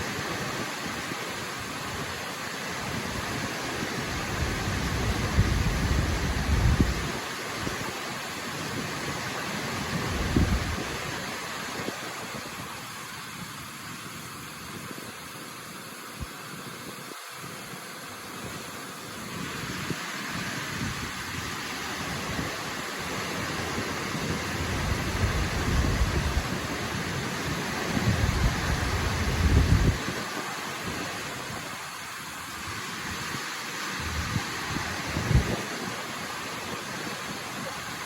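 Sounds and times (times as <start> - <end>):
waterfall rushing: 0.0 - 14.4, 16.8 - 38.0.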